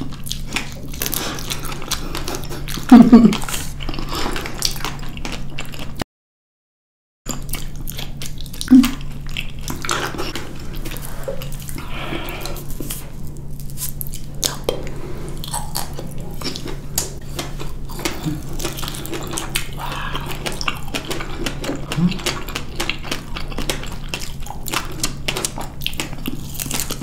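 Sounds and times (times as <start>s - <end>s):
wet chewing and lip smacks: 12.4s - 27.0s.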